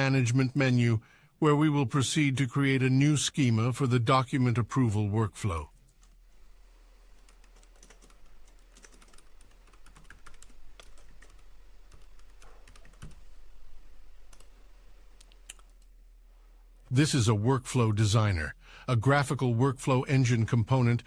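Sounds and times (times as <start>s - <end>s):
computer keyboard typing: 7.2s - 13.4s, 14.2s - 14.6s.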